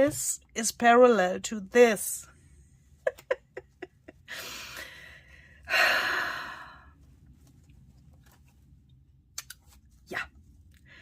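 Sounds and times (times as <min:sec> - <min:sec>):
woman breathing in: 0:04.3 - 0:07.0.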